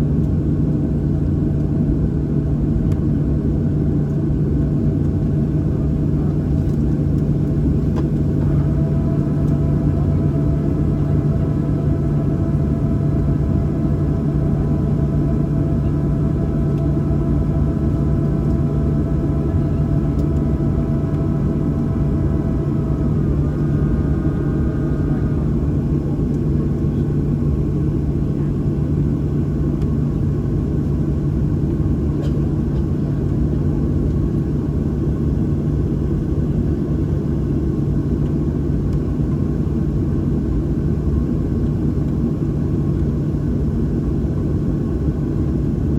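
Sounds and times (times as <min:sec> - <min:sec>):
aircraft cabin rumble and hum: 0:00.0 - 0:45.9
whining tones: 0:07.7 - 0:26.5.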